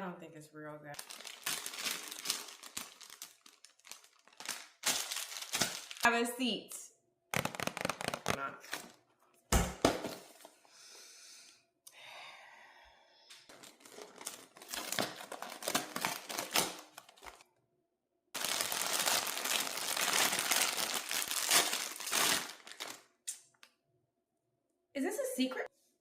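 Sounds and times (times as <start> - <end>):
packaging crackling and tearing: 1.0 - 6.1, 7.4 - 9.0, 13.5 - 17.4, 18.4 - 23.1.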